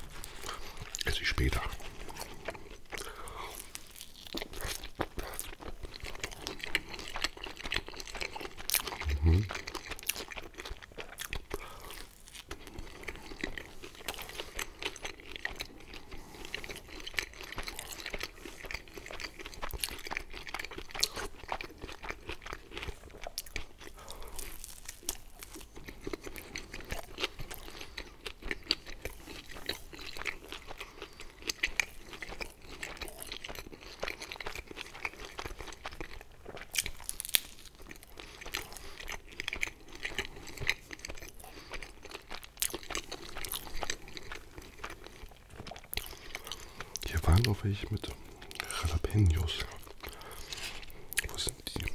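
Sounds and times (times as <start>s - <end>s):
chewing crunchy pizza crust: 0.0s - 51.9s.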